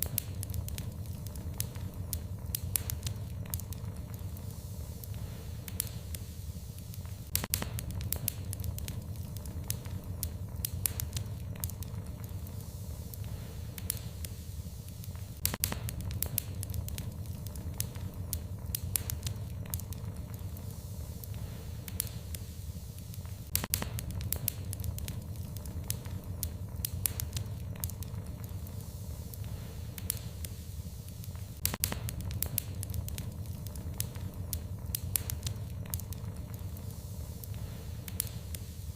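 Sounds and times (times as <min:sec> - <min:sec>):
fireplace fire crackling: 0:00.0 - 0:38.9
low rumble of flames: 0:00.0 - 0:38.9
sharp pops and snaps: 0:00.0 - 0:38.9.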